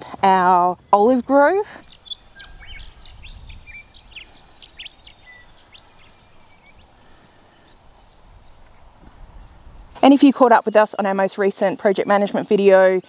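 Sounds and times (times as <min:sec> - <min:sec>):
small birds chirping: 0:00.3 - 0:10.3.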